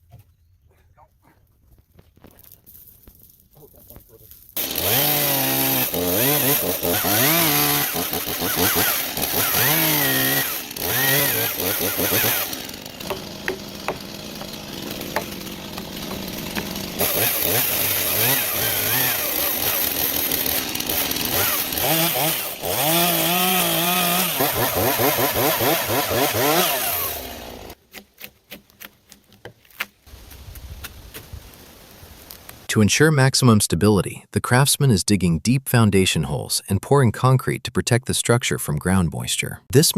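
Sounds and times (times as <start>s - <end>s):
chainsaw revving: 4.6s - 27.8s
sharp knocks: 13.0s - 17.0s.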